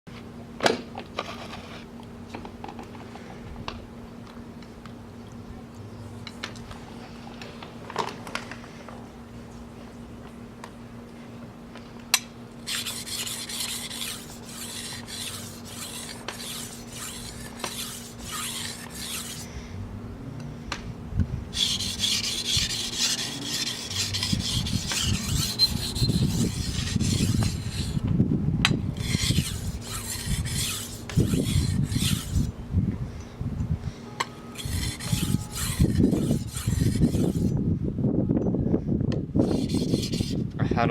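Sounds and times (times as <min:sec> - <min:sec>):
knife scraping on whetstone: 0:12.6 - 0:19.5, 0:21.6 - 0:28.0, 0:29.0 - 0:32.5, 0:34.6 - 0:37.5, 0:39.4 - 0:40.4.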